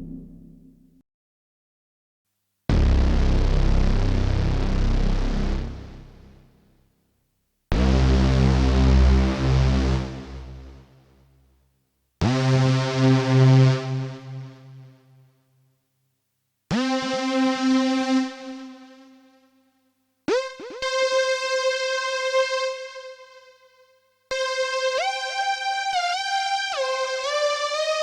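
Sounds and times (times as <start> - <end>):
synthesizer lead notes: 0.0 - 0.9.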